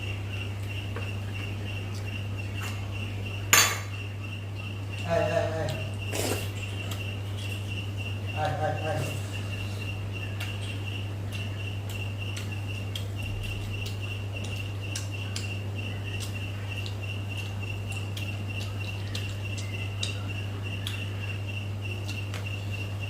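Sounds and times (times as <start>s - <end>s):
cricket chirping: 0.0s - 23.0s
low electrical hum: 0.0s - 23.0s
person chewing food: 5.7s - 8.0s, 9.2s - 21.1s.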